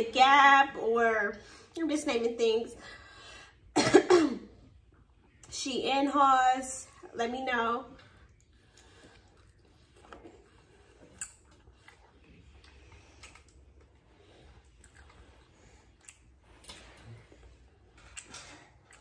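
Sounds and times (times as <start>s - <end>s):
person chewing crispy chicken: 8.4s - 17.1s.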